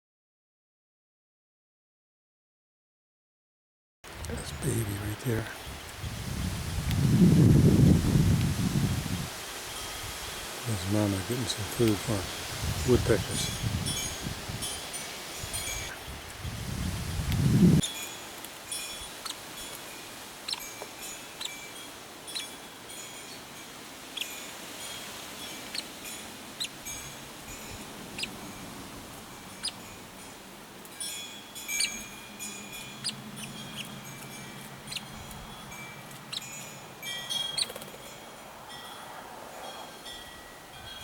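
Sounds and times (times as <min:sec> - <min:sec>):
birds chirping: 0:04.1 - 0:09.3, 0:10.7 - 0:39.0.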